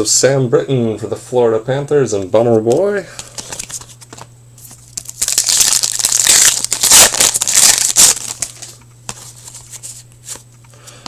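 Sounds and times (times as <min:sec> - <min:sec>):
foil wrapper torn and crumpled: 0:04.6 - 0:08.8.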